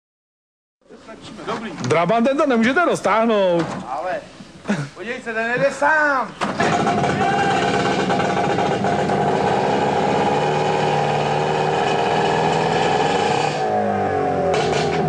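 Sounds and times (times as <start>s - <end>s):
vehicle engine running: 6.5s - 15.0s.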